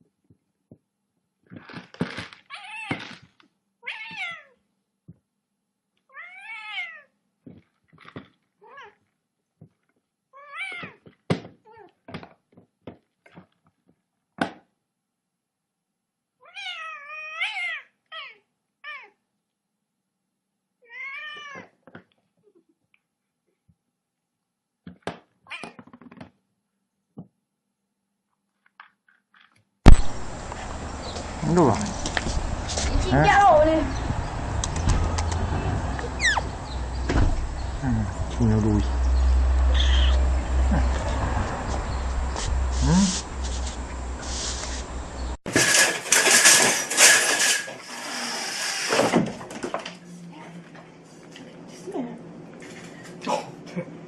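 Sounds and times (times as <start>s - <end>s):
cat meowing: 3.8s - 4.6s, 6.1s - 7.1s, 16.4s - 19.2s, 20.8s - 21.7s, 39.6s - 40.3s
sudden loud burst: 29.9s - 30.5s.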